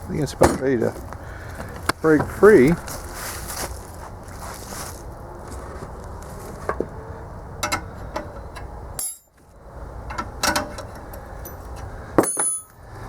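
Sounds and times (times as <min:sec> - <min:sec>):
metal knocks and clinks: 0:07.6 - 0:09.4, 0:10.1 - 0:12.8
ringing metallic clank: 0:07.6 - 0:09.4, 0:10.1 - 0:12.8.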